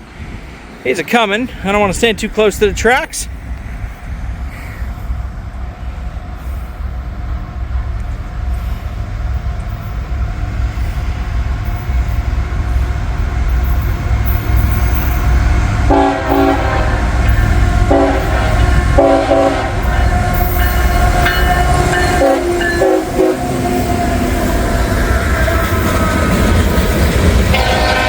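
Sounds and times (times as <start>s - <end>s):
diesel locomotive engine rumble: 0.0s - 28.0s
locomotive air horn blasts: 15.9s - 24.2s, 27.5s - 28.0s.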